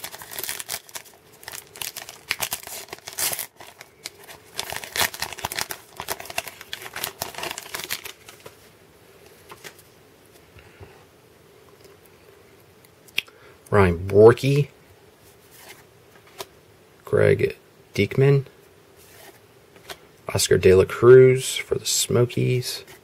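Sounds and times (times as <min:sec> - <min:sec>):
wrapper tearing and crinkling: 0:00.0 - 0:08.6.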